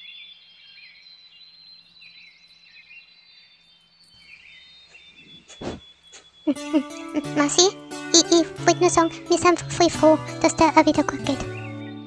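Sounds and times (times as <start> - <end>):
birds chirping and warbling: 0.0 - 7.9, 10.6 - 12.0.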